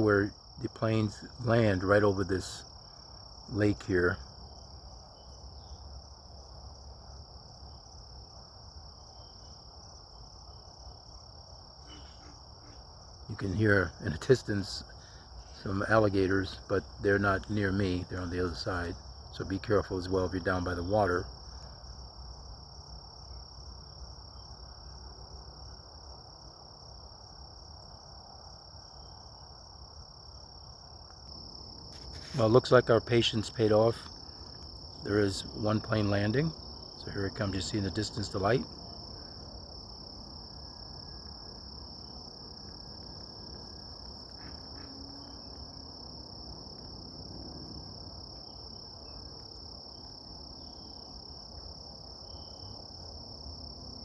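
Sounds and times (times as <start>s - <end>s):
crickets trilling: 0.0s - 54.0s
faint chirps: 11.8s - 14.1s.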